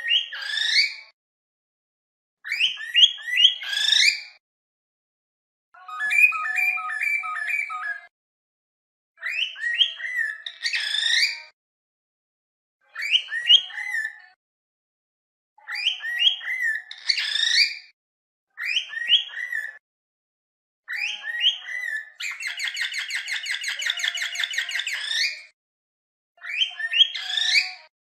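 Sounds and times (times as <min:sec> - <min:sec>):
cockatiels chirping and whistling: 0:00.0 - 0:01.0, 0:02.5 - 0:04.4, 0:05.8 - 0:08.1, 0:09.2 - 0:11.5, 0:13.0 - 0:14.3, 0:15.7 - 0:17.9, 0:18.6 - 0:19.8, 0:20.9 - 0:25.5, 0:26.4 - 0:27.9.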